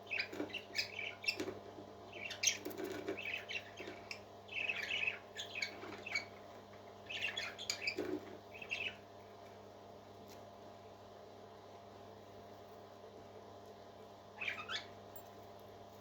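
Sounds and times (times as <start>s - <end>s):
faint hum: 0.0s - 16.0s
parrot chirping and squawking: 0.1s - 1.5s, 3.2s - 6.3s, 7.0s - 9.0s, 14.4s - 15.0s.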